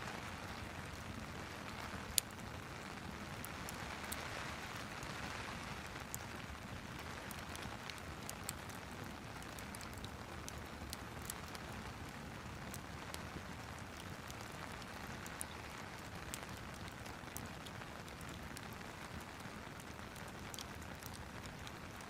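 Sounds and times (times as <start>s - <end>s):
fire popping: 0.0s - 22.0s
rain hissing: 0.0s - 22.0s.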